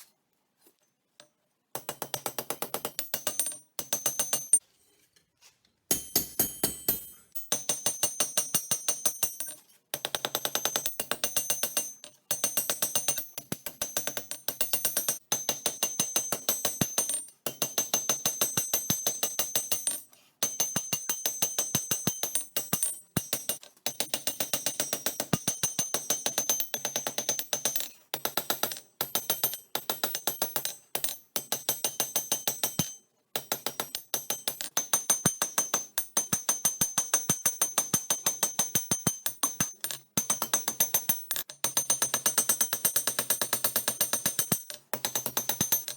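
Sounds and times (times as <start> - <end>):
hammer ringing on anvil: 5.9 - 9.5.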